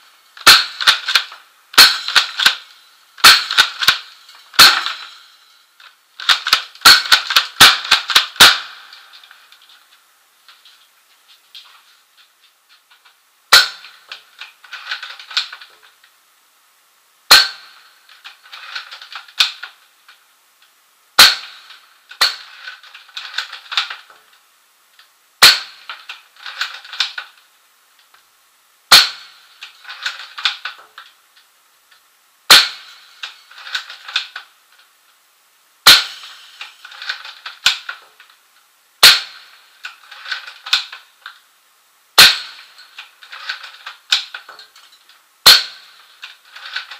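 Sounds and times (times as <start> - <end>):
airsoft gun shots: 0.4 - 2.6, 3.2 - 5.2, 6.2 - 9.1, 13.5 - 14.0, 17.3 - 17.8, 21.2 - 22.7, 25.4 - 25.9, 28.9 - 30.7, 32.5 - 34.2, 35.8 - 38.0, 39.0 - 40.9, 42.2 - 42.8, 45.4 - 46.0.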